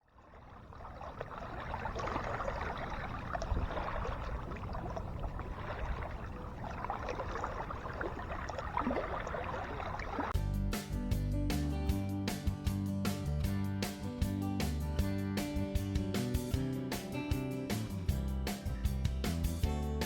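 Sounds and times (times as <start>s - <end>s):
water lapping and splashing: 0.0s - 10.4s
steady low rumble: 0.7s - 10.3s.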